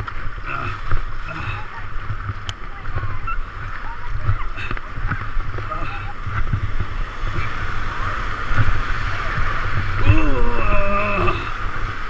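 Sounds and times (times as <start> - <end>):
river water rushing: 0.0 - 12.0
wind rumble on microphone: 0.0 - 12.0
person calling out: 10.0 - 11.6.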